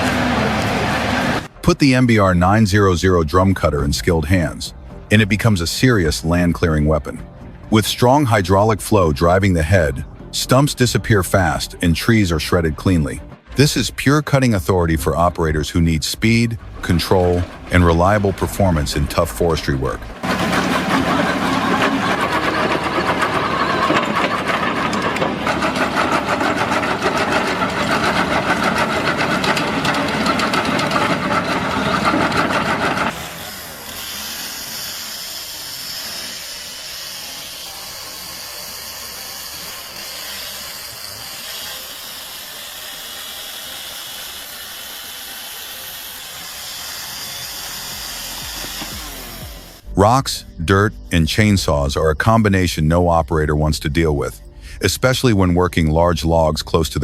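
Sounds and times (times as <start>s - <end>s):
mulching head grinding wood: 3.4s - 50.8s
steady machine hiss: 33.1s - 49.8s.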